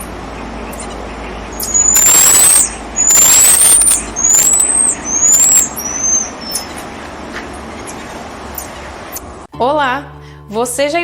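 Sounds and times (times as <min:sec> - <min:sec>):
marmoset high rising whistles: 0:01.5 - 0:06.8.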